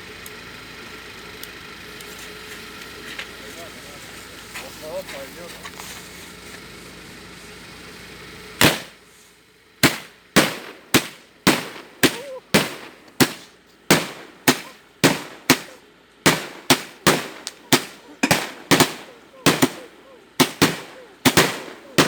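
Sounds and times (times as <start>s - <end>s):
single gunshots with echo: 8.6s - 9.0s, 9.8s - 22.0s.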